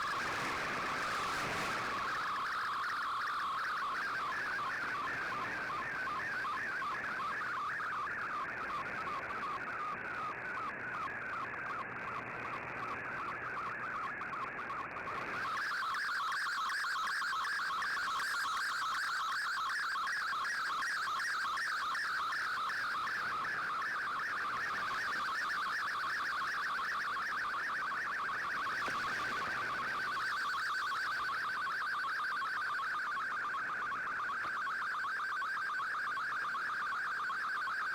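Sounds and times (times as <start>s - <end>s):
warbling data transmission tones: 0.8s - 5.0s.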